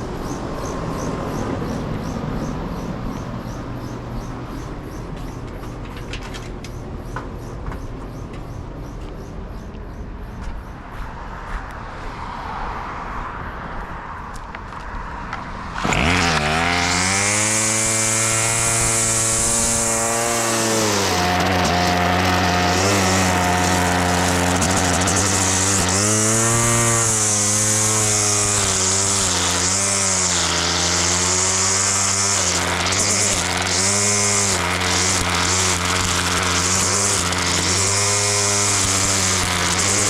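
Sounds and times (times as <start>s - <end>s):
grass cutter engine revving: 15.6s - 40.0s.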